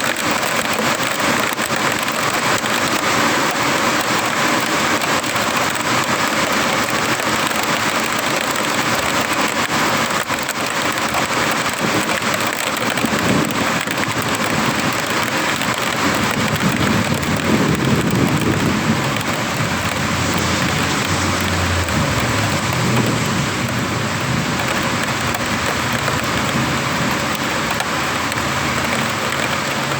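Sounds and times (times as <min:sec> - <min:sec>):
heavy rain pouring: 0:00.0 - 0:29.9
thunder rumbling: 0:15.9 - 0:28.9.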